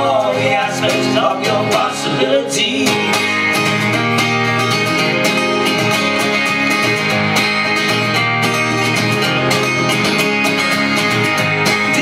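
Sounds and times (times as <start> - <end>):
live band playing: 0.0 - 12.0
strummed guitar: 0.0 - 12.0.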